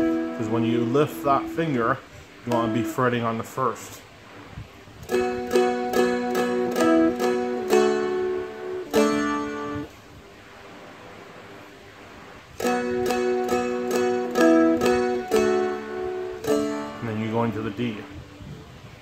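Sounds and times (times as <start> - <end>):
fretted dulcimer picking: 0.0 - 1.9, 2.5 - 3.0, 5.0 - 9.9, 12.6 - 17.4.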